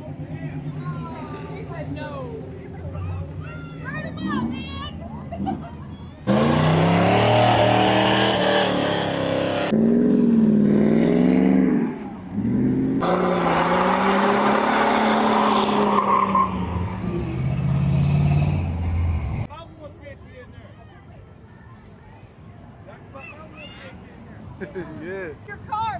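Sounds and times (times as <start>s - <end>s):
car engine revving: 6.2s - 19.5s.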